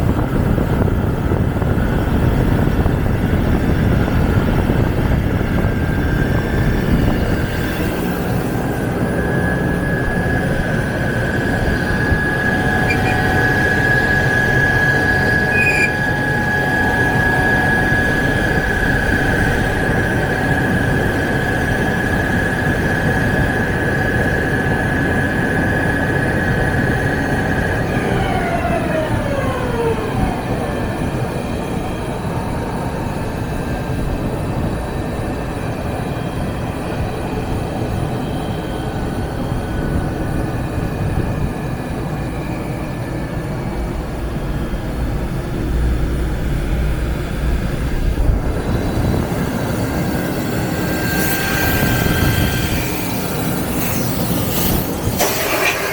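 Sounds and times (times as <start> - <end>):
high whine of lathe spindle: 0.1 - 55.9
lathe machine noise: 6.6 - 34.0, 41.5 - 55.9.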